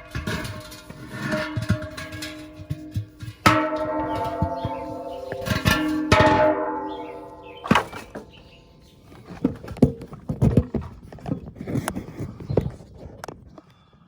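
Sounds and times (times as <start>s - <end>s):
metal knocks and clanks: 0.0s - 10.1s
struck metal ringing like a bell: 1.5s - 8.8s.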